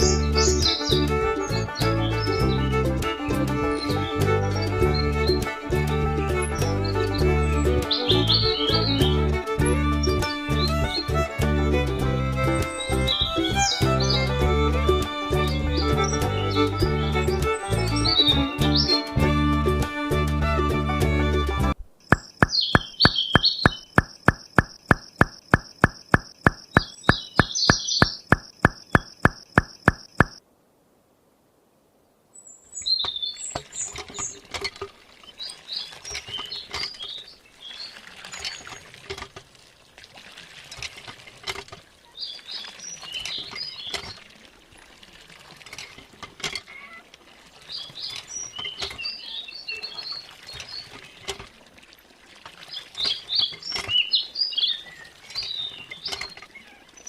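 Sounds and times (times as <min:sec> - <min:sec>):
small birds chirping: 0:00.0 - 0:05.5, 0:06.3 - 0:19.3, 0:22.0 - 0:30.4, 0:32.3 - 0:34.5, 0:35.2 - 0:38.9, 0:42.0 - 0:44.5, 0:47.7 - 0:51.6, 0:52.6 - 0:57.0
background music with steady beat: 0:00.0 - 0:30.4
light clicks and taps: 0:22.1 - 0:30.4.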